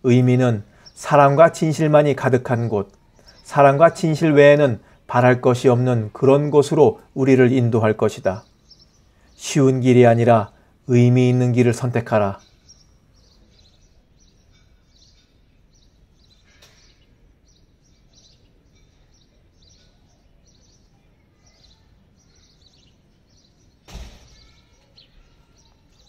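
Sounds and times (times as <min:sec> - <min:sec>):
faint birds chirping: 0:00.0 - 0:26.0
loud thump: 0:23.8 - 0:24.5.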